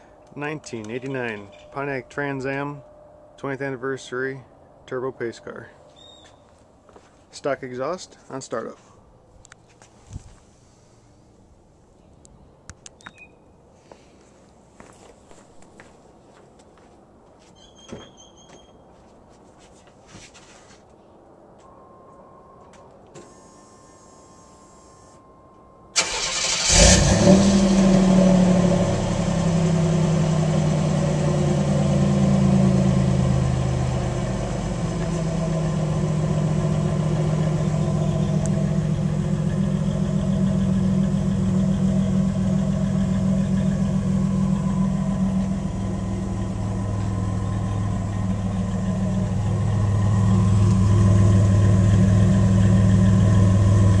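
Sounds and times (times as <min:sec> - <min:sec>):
car engine starting and idling: 0:26.0 - 0:54.0.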